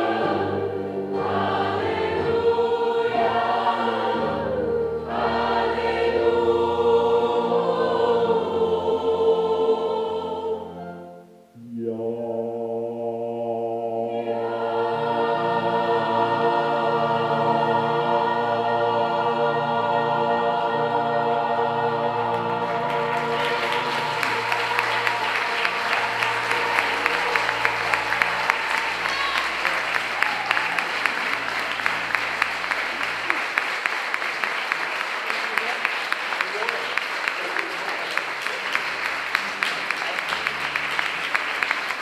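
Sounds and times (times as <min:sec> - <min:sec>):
choir holding a chord: 0:00.0 - 0:35.0
audience applause: 0:22.3 - 0:42.0.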